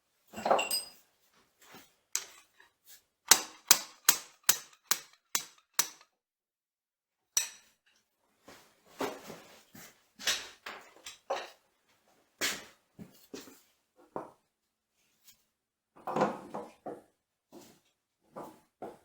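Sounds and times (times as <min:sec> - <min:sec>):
metal tools knocking and clunking: 0:00.3 - 0:01.0, 0:02.2 - 0:02.6, 0:07.4 - 0:07.8.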